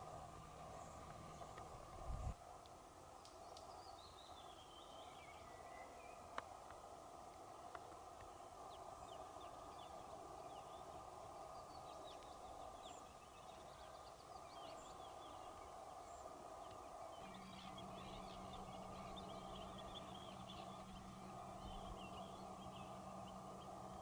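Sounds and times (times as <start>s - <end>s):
low steady hum: 0.0s - 24.0s
steady background hiss: 0.0s - 24.0s
small birds chirping: 8.2s - 24.0s.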